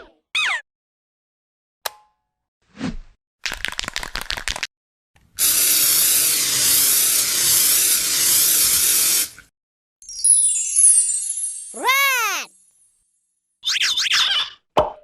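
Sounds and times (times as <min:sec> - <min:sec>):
loud hissing spray: 0:05.4 - 0:09.4
high sparkling falling tones: 0:10.0 - 0:12.9.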